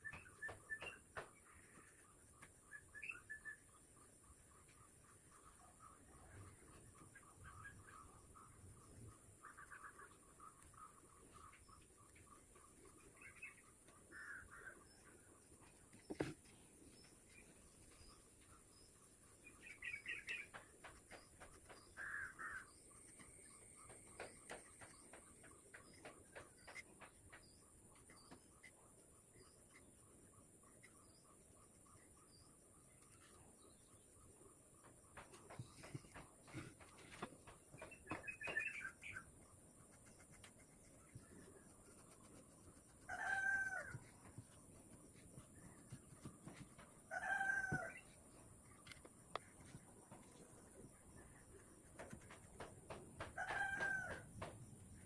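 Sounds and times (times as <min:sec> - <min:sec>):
faint bird chirps: 0:00.0 - 0:52.2
faint scattered ticks: 0:15.0 - 0:55.0.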